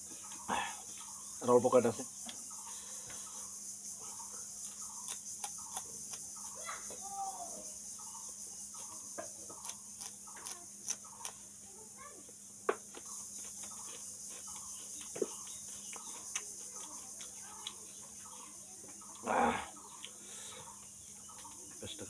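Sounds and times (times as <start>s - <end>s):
chillies being bitten and chewed: 4.6s - 6.6s, 8.8s - 11.5s, 12.9s - 19.3s.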